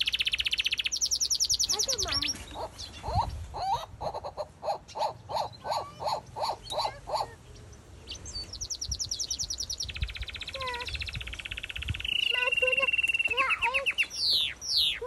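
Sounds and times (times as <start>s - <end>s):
bird trilling: 0.0s - 7.4s, 8.1s - 15.0s
small birds chirping: 0.0s - 15.0s.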